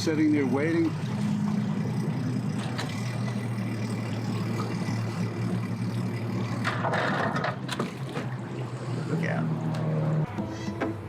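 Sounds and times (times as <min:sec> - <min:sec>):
engine idling: 0:00.0 - 0:07.5.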